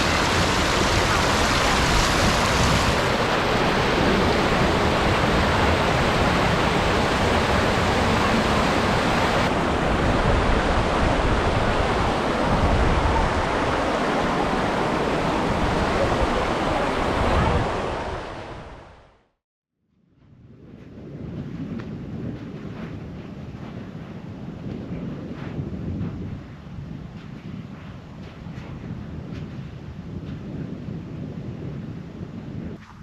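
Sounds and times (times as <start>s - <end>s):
loud rushing noise: 0.0s - 18.1s.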